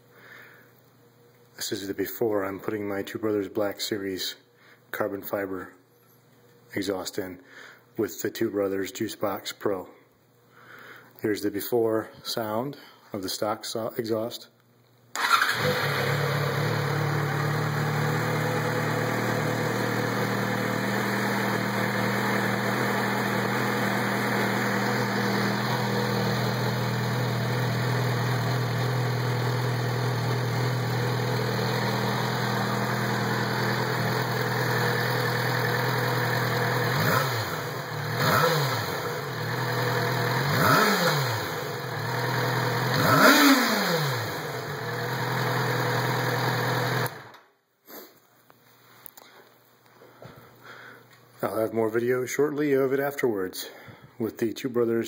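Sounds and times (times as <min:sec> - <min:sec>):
motorcycle engine idling: 0:15.2 - 0:40.6
engine revving: 0:15.2 - 0:47.3.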